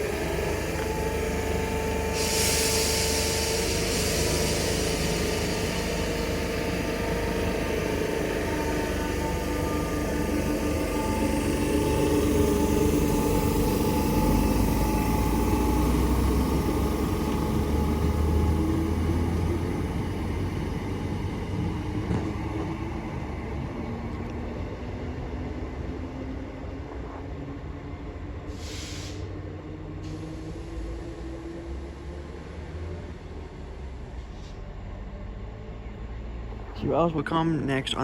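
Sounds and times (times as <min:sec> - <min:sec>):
electric train pulling away: 0:00.0 - 0:38.0
short hiss: 0:28.6 - 0:29.3.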